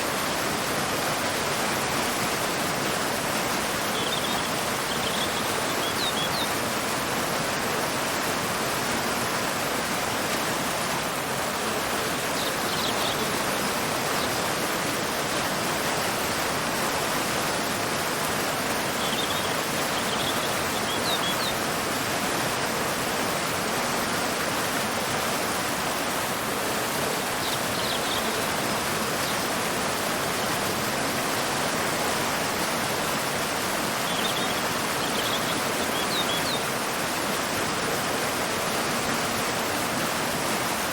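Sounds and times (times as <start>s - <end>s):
waterfall and river rushing: 0.0s - 40.9s
bird chirping: 3.8s - 6.6s, 12.4s - 14.4s, 19.0s - 21.6s, 27.3s - 28.5s, 34.0s - 36.7s.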